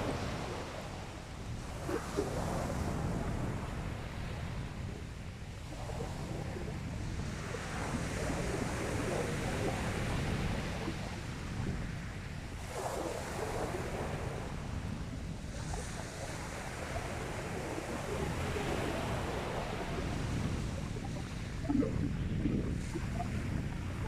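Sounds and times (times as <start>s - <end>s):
wind rumbling on microphone: 0.0s - 24.0s
sea waves breaking on beach: 5.8s - 24.0s.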